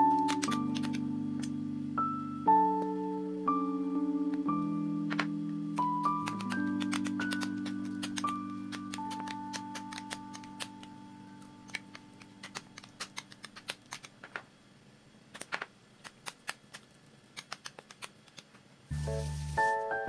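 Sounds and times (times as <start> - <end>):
computer keyboard typing: 0.0 - 1.5, 5.1 - 11.0, 11.6 - 14.3, 15.4 - 18.5
soft background music: 0.0 - 13.1, 18.9 - 20.0.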